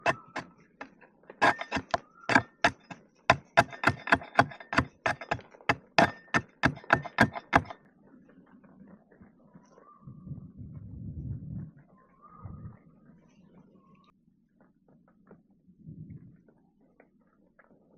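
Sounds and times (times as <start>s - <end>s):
blade chopping wood: 0.0s - 0.5s, 1.4s - 7.8s.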